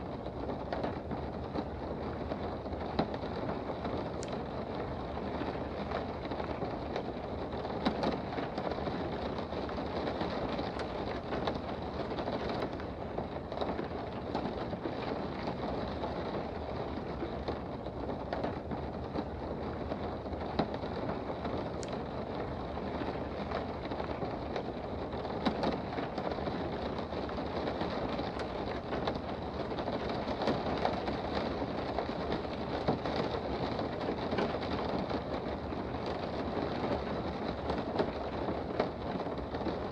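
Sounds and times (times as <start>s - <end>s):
rain heard from indoors: 0.0s - 39.9s
single raindrops ticking: 2.7s - 15.8s, 20.6s - 36.4s.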